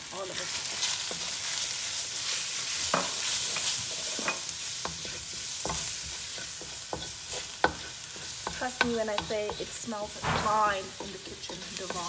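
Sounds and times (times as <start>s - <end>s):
onions frying in pan: 0.0s - 12.0s
wooden spoon scraping pan: 2.1s - 12.0s.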